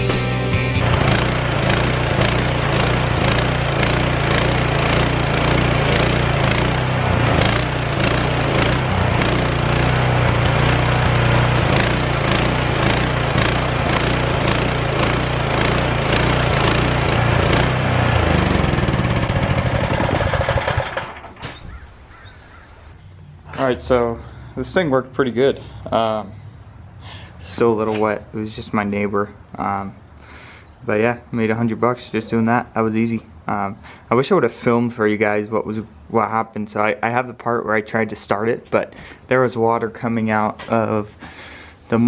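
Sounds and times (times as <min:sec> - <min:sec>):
pressure washer engine running: 0:00.0 - 0:21.4.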